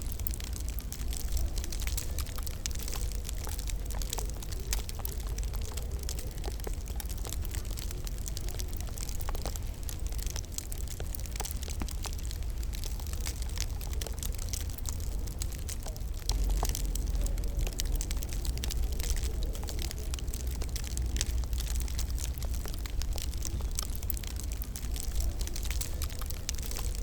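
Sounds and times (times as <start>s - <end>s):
wood fire crackling: 0.0s - 27.0s.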